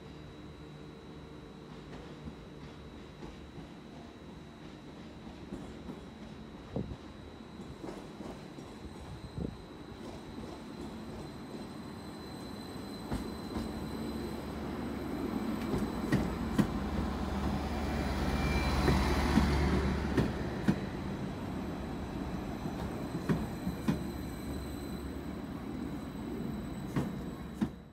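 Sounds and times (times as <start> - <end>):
train passing rumble: 13.1 - 27.9.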